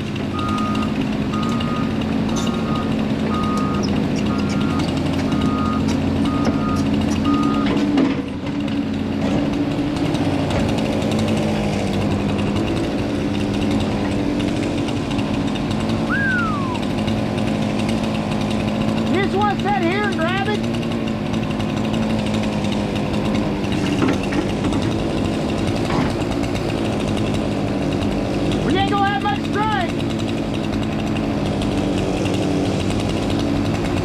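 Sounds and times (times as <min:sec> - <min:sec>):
excavator diesel engine running: 0:00.0 - 0:34.0
travel alarm beeping: 0:00.4 - 0:01.9
short falling whistle: 0:16.1 - 0:16.9.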